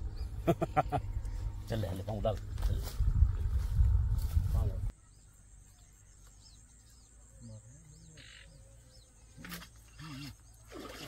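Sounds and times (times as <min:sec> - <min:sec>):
faint high bird chirps: 0:04.9 - 0:11.0.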